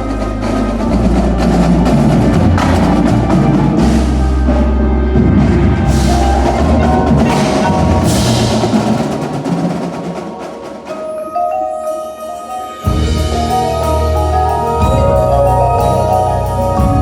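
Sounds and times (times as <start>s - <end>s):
heavy low bass: 0.0s - 9.2s, 12.9s - 17.0s
drums: 0.0s - 17.0s
marimba and mallet keyboards: 0.0s - 17.0s.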